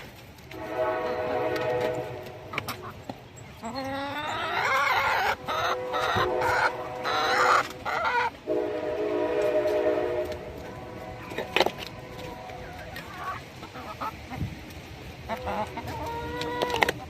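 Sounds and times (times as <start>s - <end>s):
steady horn-like tone: 0.5s - 2.9s, 5.4s - 13.0s
chickens squawking: 2.3s - 8.5s, 10.6s - 17.0s.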